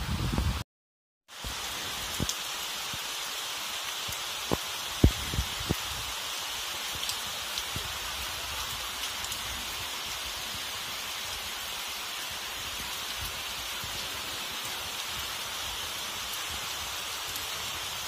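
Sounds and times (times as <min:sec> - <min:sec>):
heavy rain pouring: 0:01.3 - 0:18.0.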